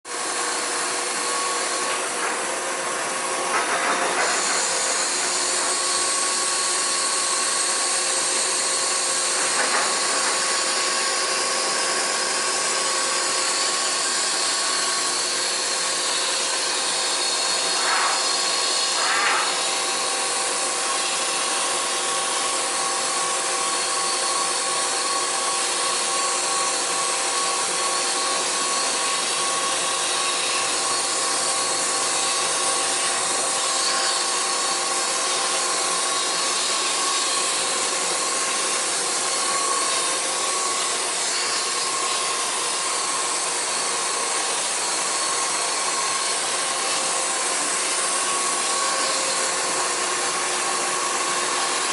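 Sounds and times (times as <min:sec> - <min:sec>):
boring mill machine noise: 0:00.1 - 0:51.9
hiss: 0:17.7 - 0:18.2, 0:18.9 - 0:19.5.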